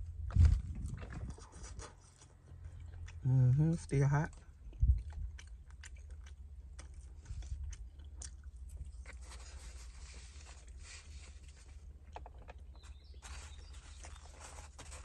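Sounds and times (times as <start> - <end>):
person chewing food: 0.0 - 15.0
foam container being handled: 9.2 - 11.8, 13.2 - 15.0.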